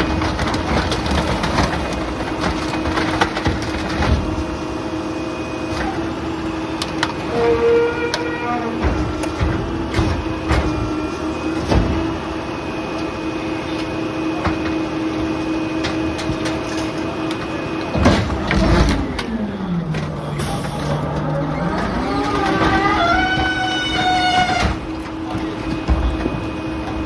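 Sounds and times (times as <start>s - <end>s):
debris knocking and clattering: 0.0s - 4.5s, 8.8s - 12.2s, 18.0s - 27.0s
garbage truck engine humming: 0.0s - 27.0s.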